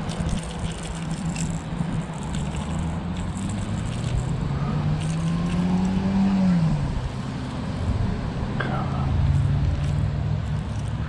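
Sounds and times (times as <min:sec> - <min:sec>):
light clicking and rattling: 0:00.0 - 0:04.4, 0:09.2 - 0:11.0
vehicle engine humming: 0:00.0 - 0:11.0.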